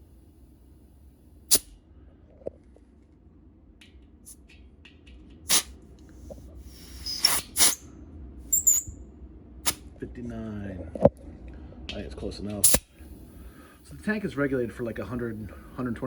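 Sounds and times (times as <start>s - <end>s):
compressed air hissing at valve: 5.5s - 7.8s, 8.5s - 8.9s, 12.6s - 16.0s.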